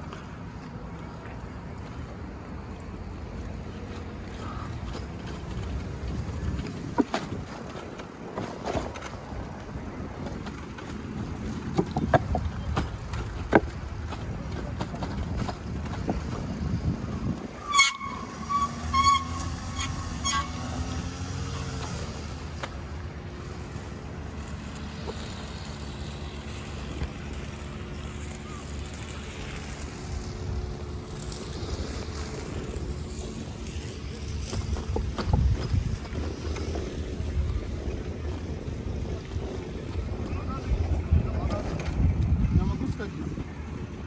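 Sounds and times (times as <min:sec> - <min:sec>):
traffic rumble: 0:00.0 - 0:44.0
vehicle horn toots: 0:17.6 - 0:21.7.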